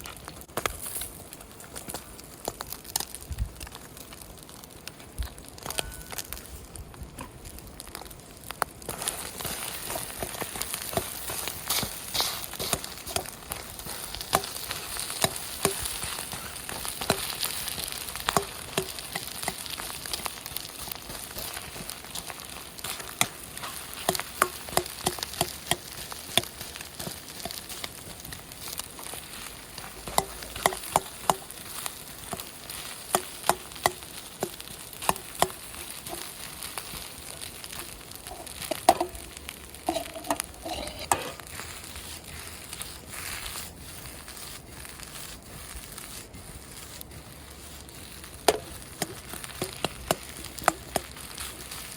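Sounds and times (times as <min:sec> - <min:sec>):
rice sizzling in a pan: 0:00.0 - 0:51.9
utensil clacking against pan: 0:22.9 - 0:27.7, 0:30.0 - 0:31.5.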